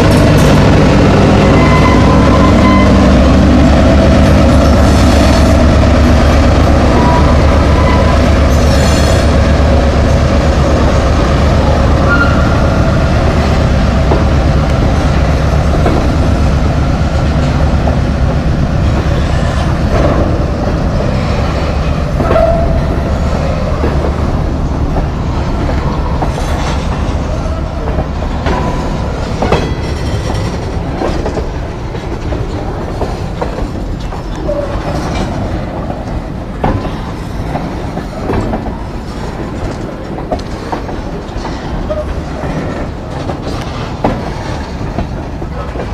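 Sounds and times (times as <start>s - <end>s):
train rumbling past: 0.0s - 45.9s
wheel squeals: 1.4s - 3.2s, 6.9s - 9.5s, 11.6s - 13.2s, 21.2s - 30.6s
wheels clicking over rail joints: 4.2s - 45.9s.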